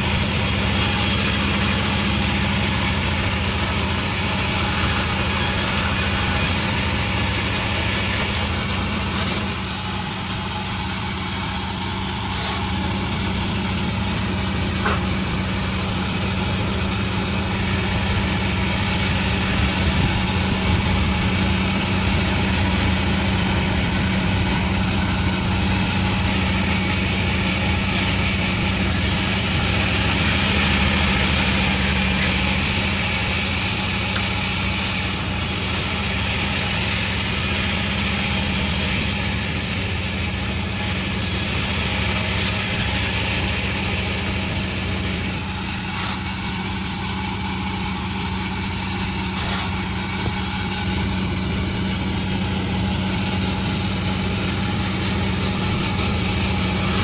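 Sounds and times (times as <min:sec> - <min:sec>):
engine drone: 0:00.0 - 0:57.0
saw noise: 0:00.0 - 0:57.0.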